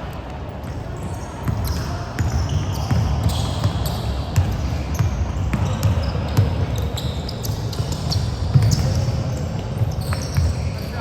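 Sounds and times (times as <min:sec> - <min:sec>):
basketball bouncing: 0:00.6 - 0:10.9
shoe squeaks: 0:00.7 - 0:11.0.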